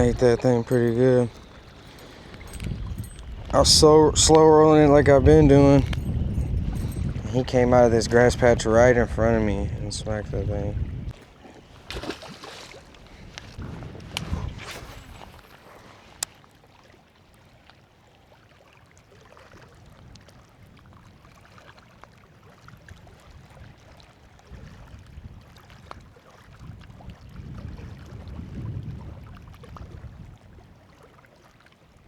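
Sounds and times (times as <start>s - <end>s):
faint ticks: 0.0s - 4.4s, 11.1s - 16.4s
wind buffeting microphone: 0.0s - 16.3s, 22.8s - 30.8s.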